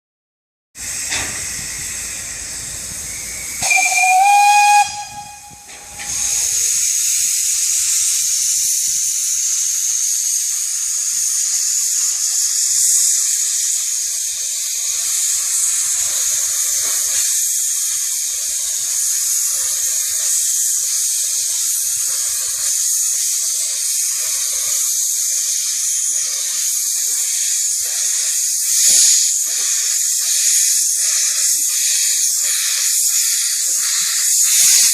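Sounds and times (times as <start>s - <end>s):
steam hissing: 0.8s - 34.9s
steam locomotive whistle: 3.6s - 6.8s.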